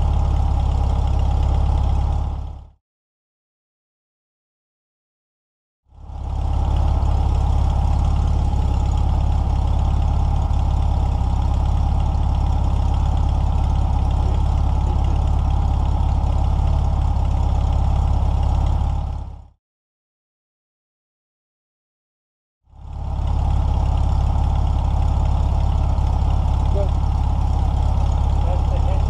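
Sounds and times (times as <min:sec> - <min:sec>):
car engine idling: 0:00.0 - 0:02.7, 0:06.0 - 0:19.5, 0:22.8 - 0:29.0.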